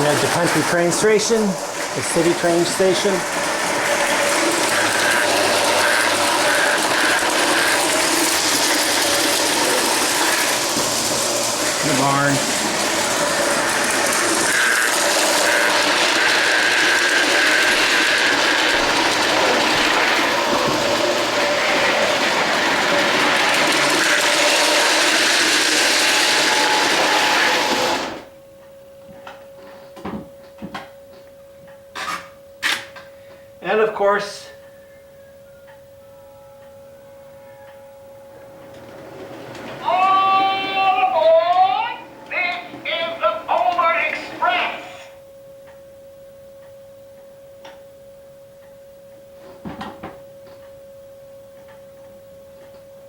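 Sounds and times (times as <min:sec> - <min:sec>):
toy train rattling on track: 0:00.0 - 0:28.2.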